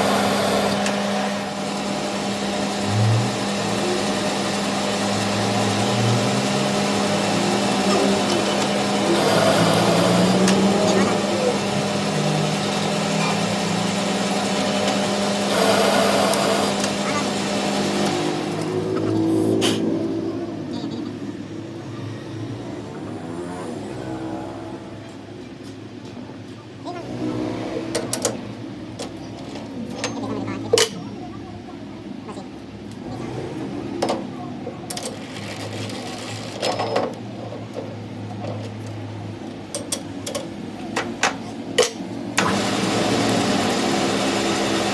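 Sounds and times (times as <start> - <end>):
machine motor humming: 0.0 - 24.9, 42.2 - 44.9.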